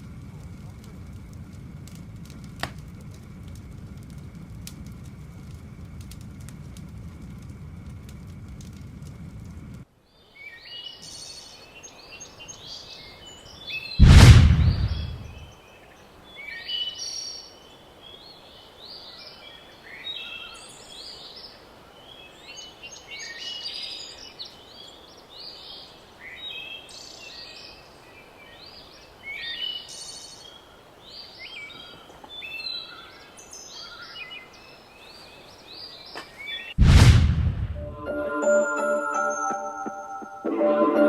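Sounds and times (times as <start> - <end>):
faint steady hiss: 0.0 - 41.0
songbirds chirping and trilling: 10.1 - 14.0, 14.6 - 36.8.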